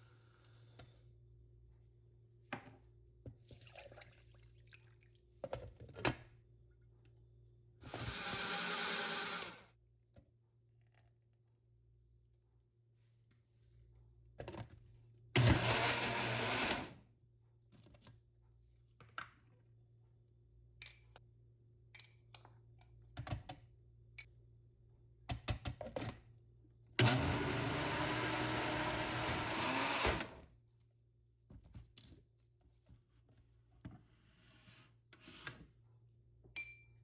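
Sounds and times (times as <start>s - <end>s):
electric mixer running: 7.8s - 9.7s, 15.4s - 16.9s, 27.0s - 30.4s.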